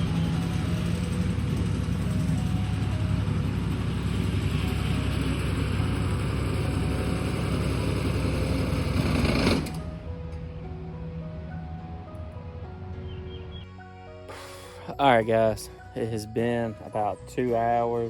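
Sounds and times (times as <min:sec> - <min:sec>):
tractor engine running: 0:00.0 - 0:13.7.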